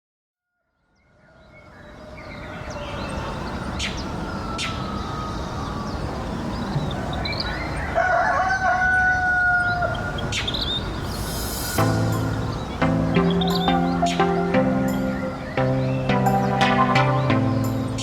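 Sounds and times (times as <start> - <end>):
outdoor background hiss and rumble: 1.8 - 18.0
distant rooster call: 7.5 - 10.3
rooster crowing: 7.9 - 10.2.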